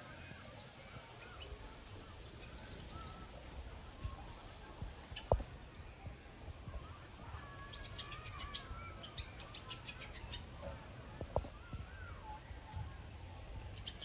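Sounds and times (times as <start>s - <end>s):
small birds chirping: 0.0s - 14.0s
soft wavering bird calls: 0.5s - 6.0s, 6.7s - 14.0s.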